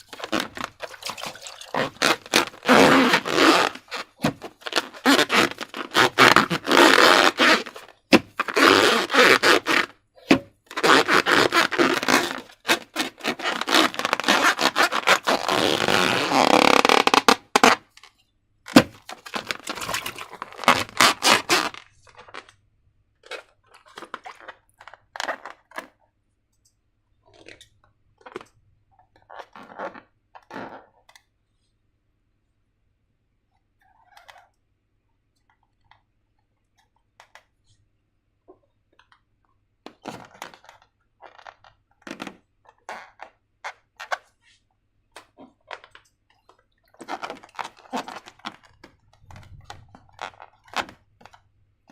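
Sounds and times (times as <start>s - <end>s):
slime squelching by hand: 0.0s - 5.7s.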